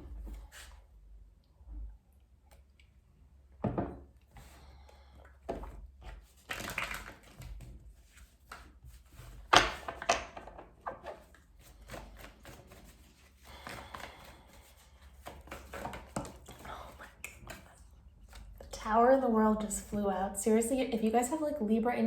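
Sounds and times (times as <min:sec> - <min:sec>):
cards being shuffled by hand: 0:06.0 - 0:18.7.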